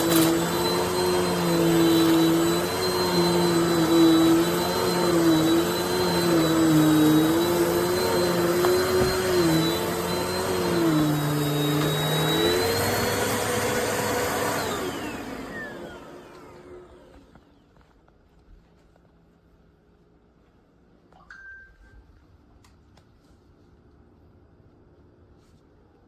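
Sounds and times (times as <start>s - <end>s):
vacuum motor winding down: 0.0s - 17.6s
vacuum cleaner running: 0.0s - 17.9s.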